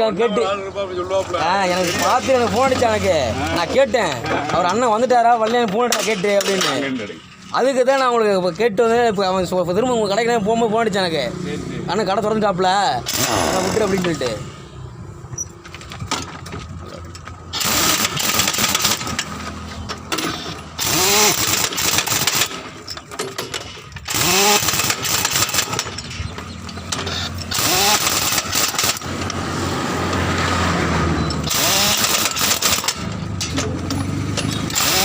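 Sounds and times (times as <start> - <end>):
air tool whining: 13.1 - 14.5, 17.4 - 30.3, 31.1 - 33.6, 34.4 - 35.0.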